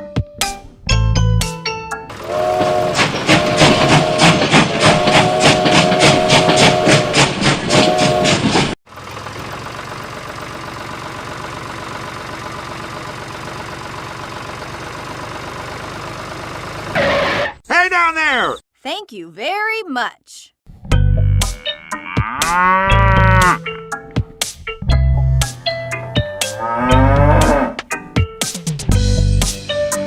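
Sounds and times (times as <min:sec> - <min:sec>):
machine chugging: 0:02.1 - 0:17.0.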